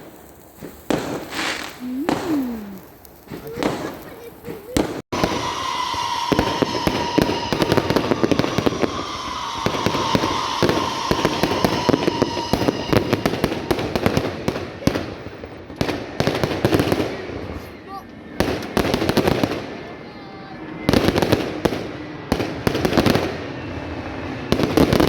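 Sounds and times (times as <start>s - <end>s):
fireworks crackling bangs: 0.0s - 25.0s
steady high tone: 5.2s - 14.4s.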